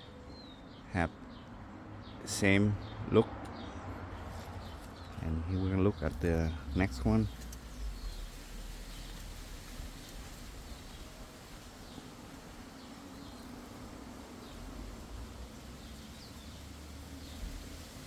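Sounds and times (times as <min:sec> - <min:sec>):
steady low rumble: 0:05.2 - 0:11.9.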